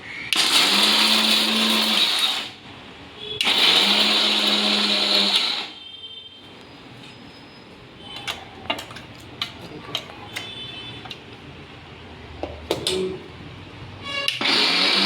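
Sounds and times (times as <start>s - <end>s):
mixer grinder grinding nuts: 0.4s - 2.6s, 3.4s - 5.8s, 14.3s - 15.0s.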